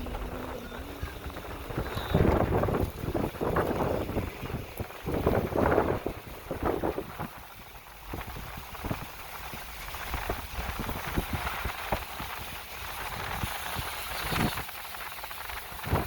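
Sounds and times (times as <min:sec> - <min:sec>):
wind hissing across microphone: 0:00.0 - 0:16.0.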